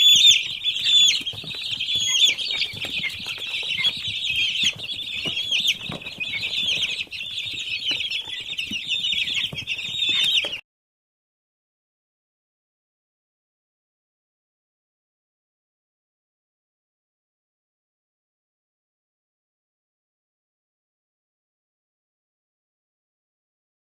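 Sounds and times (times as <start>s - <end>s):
chicks peeping: 0.0s - 10.6s.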